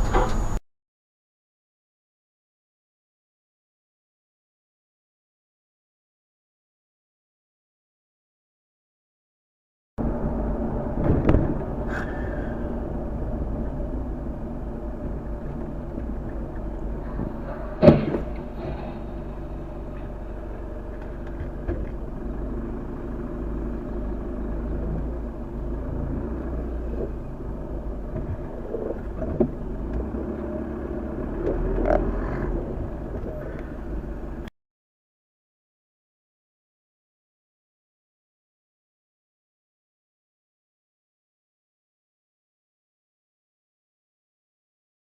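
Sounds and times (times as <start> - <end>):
car engine and road noise: 0.0 - 0.6, 10.0 - 34.5
sharp loud bang: 17.6 - 19.4.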